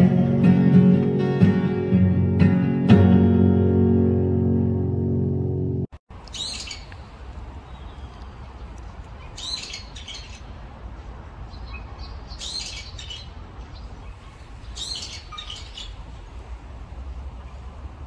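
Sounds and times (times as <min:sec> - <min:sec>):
bird calling: 0:06.2 - 0:16.0.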